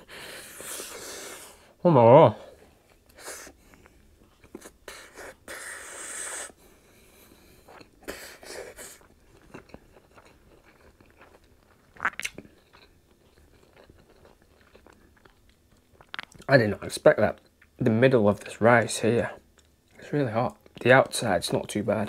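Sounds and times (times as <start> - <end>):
chewing crispy food: 2.7 - 5.4, 7.4 - 17.8.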